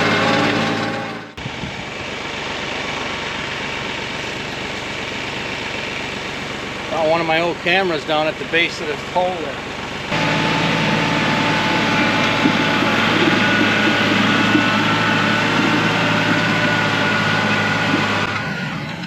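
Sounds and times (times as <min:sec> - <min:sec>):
tractor diesel engine running: 0:00.0 - 0:19.0
thin steady whine: 0:08.8 - 0:18.5.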